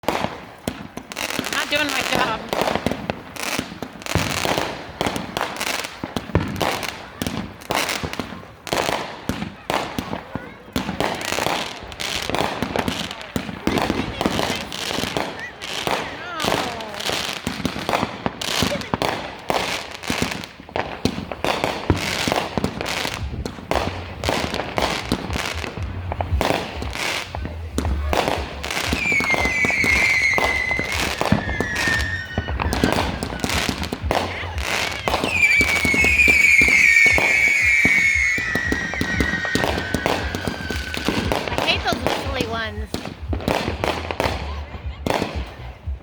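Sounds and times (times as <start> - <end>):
fireworks whistling downward: 0.0 - 8.9, 28.1 - 44.4
fireworks bangs and crackles: 0.0 - 46.0.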